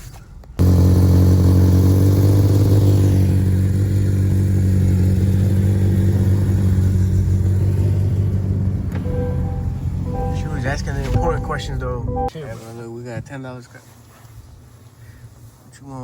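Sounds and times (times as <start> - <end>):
car engine revving high: 0.6 - 12.3.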